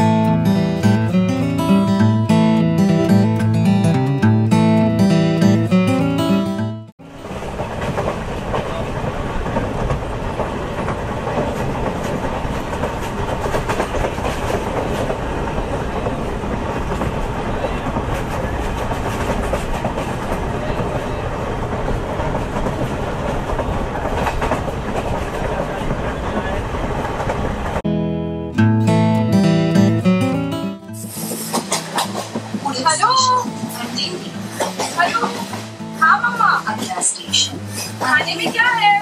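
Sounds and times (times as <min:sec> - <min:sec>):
train wheels clattering on track: 0:07.0 - 0:27.8, 0:31.2 - 0:36.1, 0:36.7 - 0:39.0.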